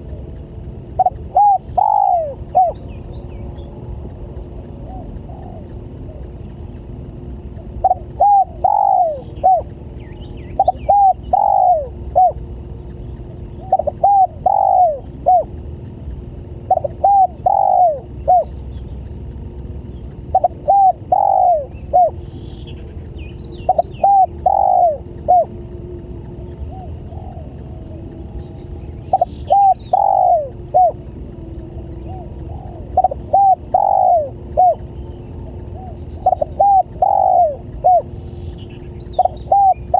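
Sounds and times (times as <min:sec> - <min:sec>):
dove cooing: 0:00.0 - 0:03.8, 0:04.7 - 0:15.6, 0:16.6 - 0:18.6, 0:20.2 - 0:22.2, 0:22.8 - 0:25.8, 0:26.4 - 0:39.9.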